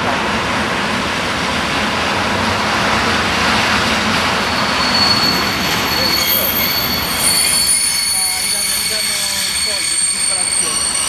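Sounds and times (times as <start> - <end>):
train wheels rushing on rails: 0.0 - 11.0
high wheel squeal: 4.0 - 11.0.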